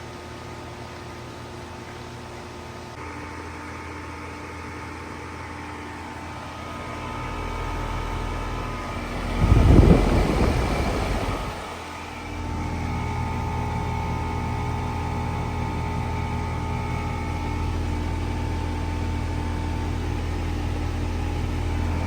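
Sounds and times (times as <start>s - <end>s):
heat pump humming: 0.0s - 22.0s
loud low rush: 7.2s - 12.4s.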